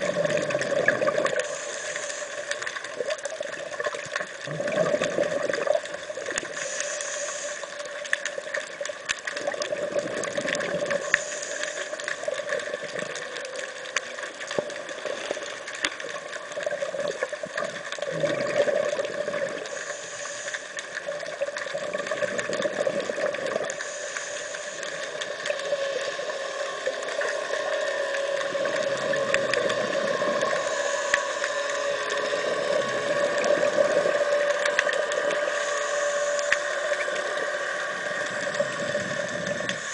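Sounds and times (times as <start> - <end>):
bubbling exhalation: 0.0 - 1.5, 4.4 - 6.3, 9.4 - 11.1, 17.0 - 19.7, 21.8 - 23.7
diver's regulator breathing: 0.0 - 3.0, 6.4 - 8.1, 9.9 - 13.2, 18.1 - 21.1, 22.2 - 34.1
steady underwater hum: 0.0 - 39.9.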